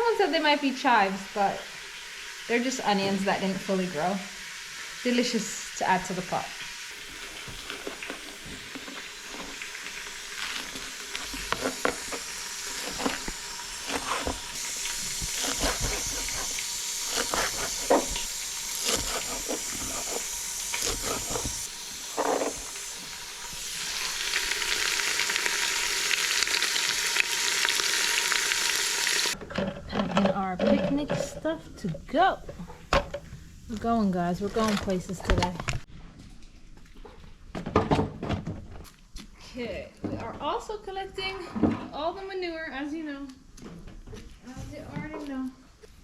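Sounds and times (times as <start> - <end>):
food sizzling in a pot: 0.0 - 29.4.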